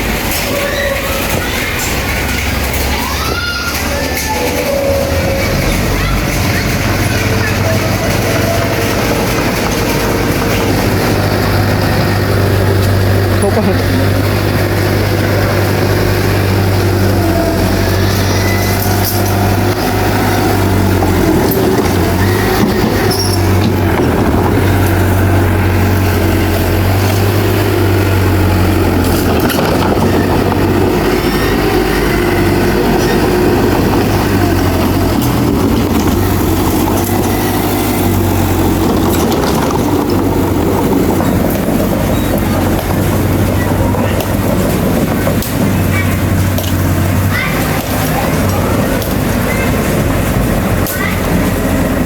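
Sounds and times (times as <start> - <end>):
bulldozer diesel engine running: 0.0 - 52.0
machine clanks: 0.0 - 52.0.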